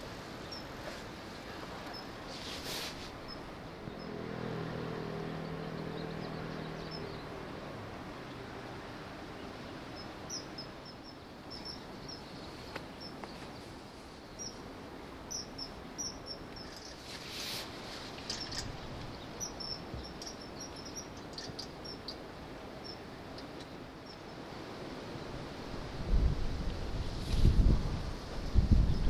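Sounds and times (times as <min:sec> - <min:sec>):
background hiss: 0:00.0 - 0:29.0
bird chirps: 0:05.4 - 0:07.3, 0:09.4 - 0:13.7, 0:15.3 - 0:17.1, 0:18.3 - 0:22.2.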